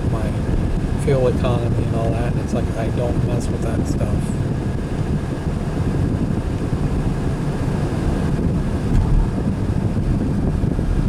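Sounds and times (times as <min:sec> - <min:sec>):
car cabin road and engine rumble: 0:00.0 - 0:11.0
low thump: 0:08.8 - 0:09.7.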